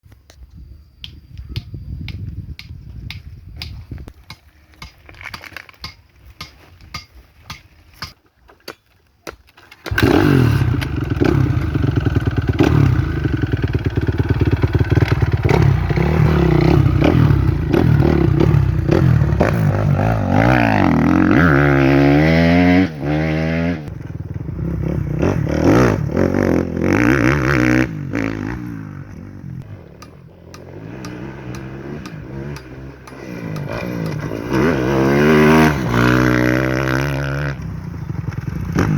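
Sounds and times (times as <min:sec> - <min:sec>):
motocross bike engine revving: 0:09.9 - 0:29.9, 0:30.5 - 0:38.9.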